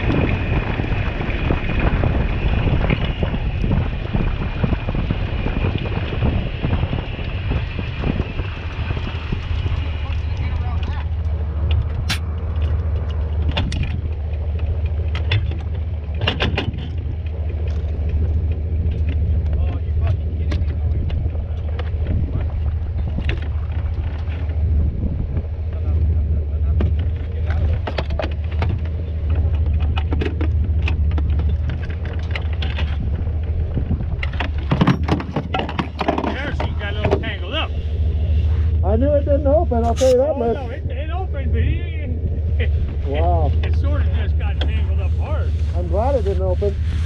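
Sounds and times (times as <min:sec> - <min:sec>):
vehicle engine idling: 0:00.0 - 0:47.0
sharp clicks and knocks: 0:10.8 - 0:24.6, 0:26.8 - 0:37.3.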